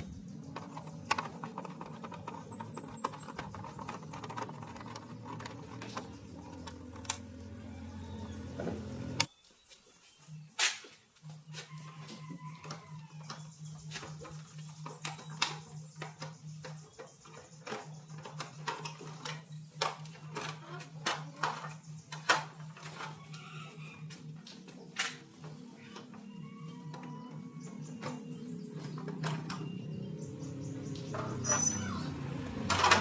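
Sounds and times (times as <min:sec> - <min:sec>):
hand tools and metal parts clicking: 0:00.0 - 0:09.3.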